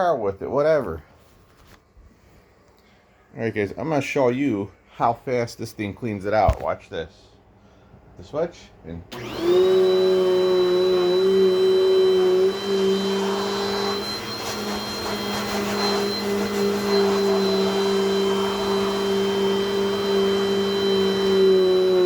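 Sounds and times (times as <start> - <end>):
vacuum cleaner whining: 9.1 - 22.0.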